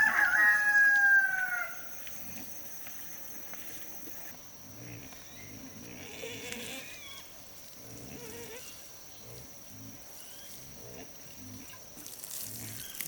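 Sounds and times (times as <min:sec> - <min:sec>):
farm animals calling: 0:00.0 - 0:02.5, 0:04.8 - 0:11.8.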